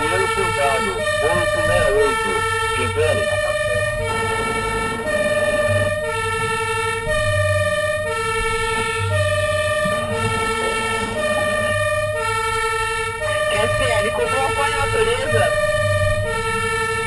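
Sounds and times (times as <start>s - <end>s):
fire engine two-tone siren: 0.0s - 17.0s
truck engine rumble: 0.0s - 17.0s.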